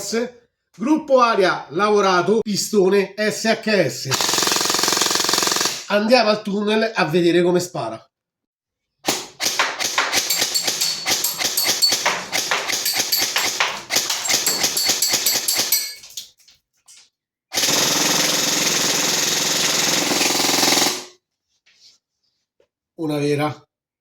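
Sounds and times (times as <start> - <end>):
airsoft gun firing full auto: 4.2 - 5.9, 9.1 - 10.3, 17.6 - 21.1.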